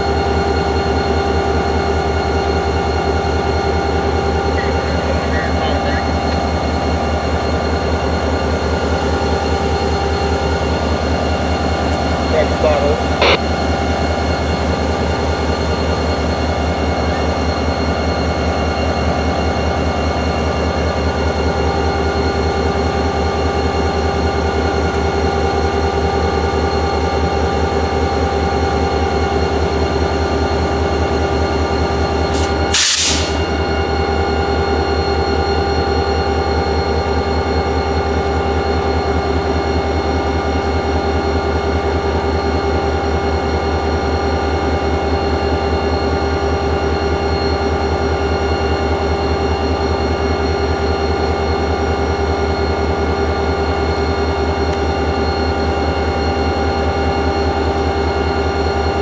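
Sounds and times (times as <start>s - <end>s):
diesel locomotive engine running: 0.0s - 59.0s
air hiss: 32.4s - 33.4s.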